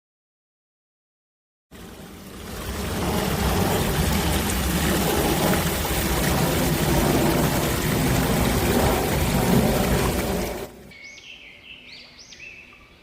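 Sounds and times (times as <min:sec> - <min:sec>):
deep rumble: 0:01.8 - 0:10.9
loud steady rushing noise: 0:01.8 - 0:10.9.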